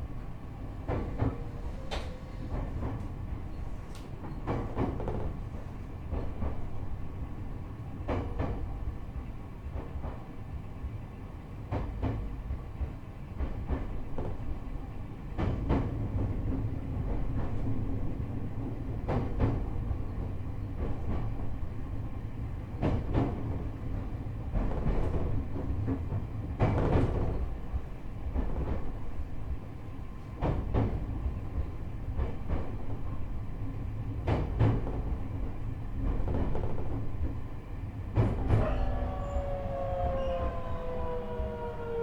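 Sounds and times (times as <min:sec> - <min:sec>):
train low rumble: 0:00.0 - 0:42.0.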